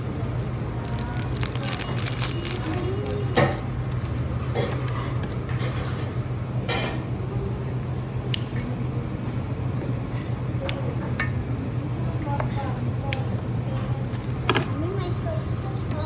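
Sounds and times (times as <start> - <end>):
steady low hum: 0.0 - 16.0
dishes and utensils clinking: 1.3 - 7.1.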